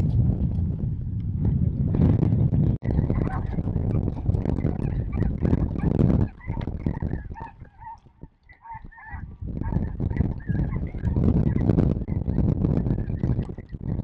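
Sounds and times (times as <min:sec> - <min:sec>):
low rumbling microphone noise: 0:00.0 - 0:14.0
geese yelping calls: 0:02.9 - 0:12.3.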